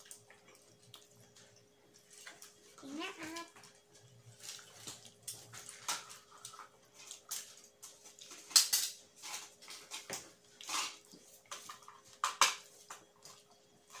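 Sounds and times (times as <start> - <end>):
wet chewing and lip-smacking: 0.0 - 2.6.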